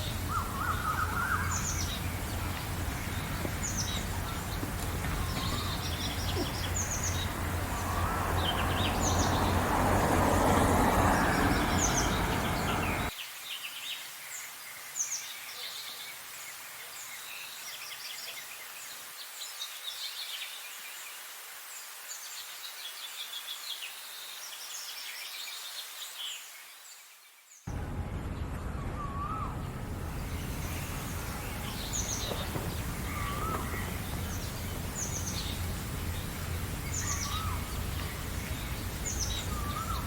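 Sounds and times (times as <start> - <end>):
songbirds chirping and singing: 0.0 - 13.2, 28.8 - 40.0
faint background noise: 0.0 - 40.0
low rumble with steady hum: 27.7 - 40.0.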